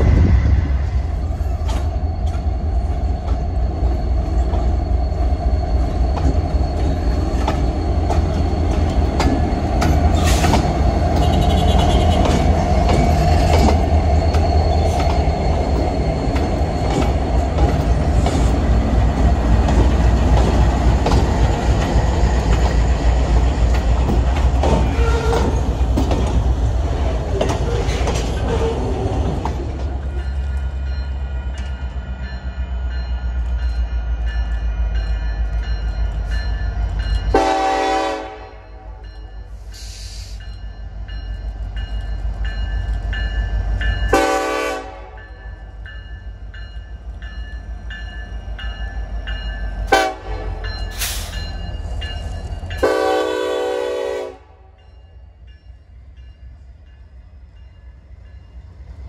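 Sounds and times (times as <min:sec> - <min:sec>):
wheel and rail noise: 0:00.0 - 0:37.7
diesel locomotives rumbling: 0:00.0 - 0:59.0
locomotive air horn blasts: 0:11.2 - 0:12.3, 0:37.3 - 0:38.9, 0:44.1 - 0:45.2, 0:49.9 - 0:50.6, 0:52.8 - 0:54.7.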